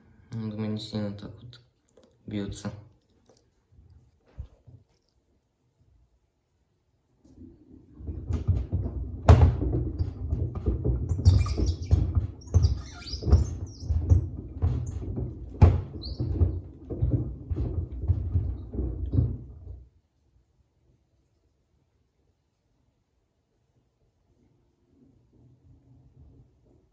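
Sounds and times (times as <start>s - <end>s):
washer drum rumbling: 7.4s - 19.9s.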